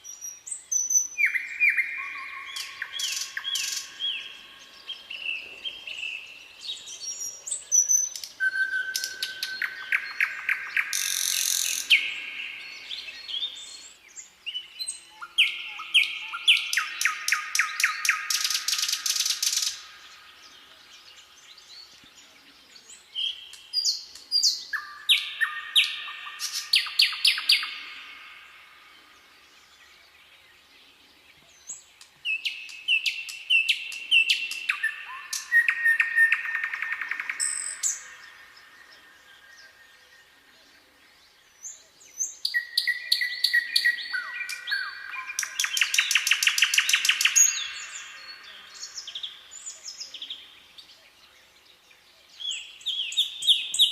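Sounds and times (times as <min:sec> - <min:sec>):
songbirds singing with trills: 0:00.0 - 0:53.9.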